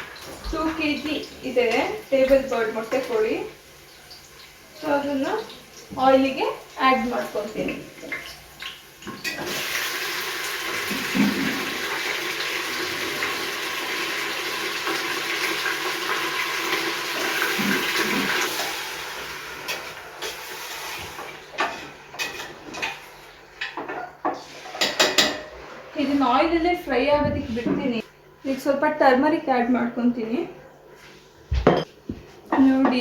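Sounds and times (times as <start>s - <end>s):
chicken sizzling in hot oil: 1.1s - 23.4s.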